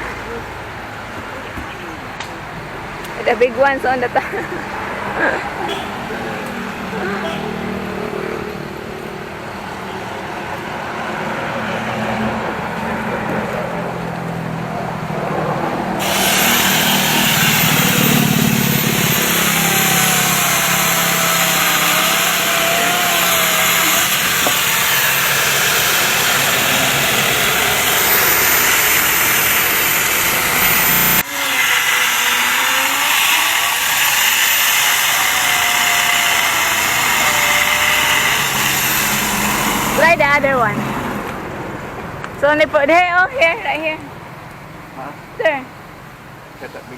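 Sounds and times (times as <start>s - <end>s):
chainsaw cutting tree branches: 16.0s - 41.4s.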